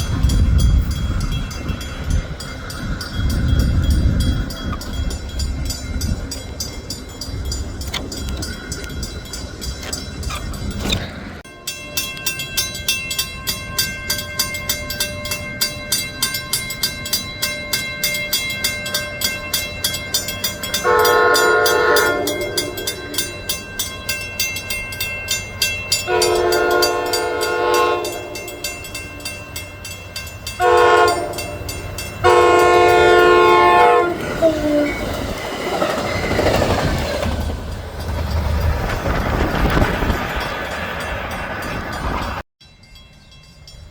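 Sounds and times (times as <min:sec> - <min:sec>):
crossing bell clanging: 0:00.0 - 0:43.9
train horn blasts: 0:20.8 - 0:23.3, 0:26.0 - 0:28.7, 0:30.6 - 0:35.0.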